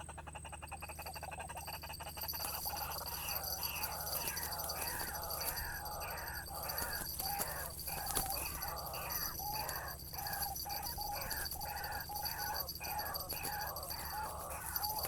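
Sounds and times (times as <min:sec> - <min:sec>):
bird harsh repeated calls: 0:00.0 - 0:15.0.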